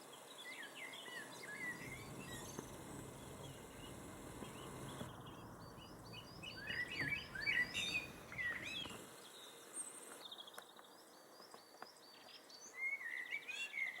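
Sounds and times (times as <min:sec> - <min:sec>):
blackbird singing: 0:01.0 - 0:09.0.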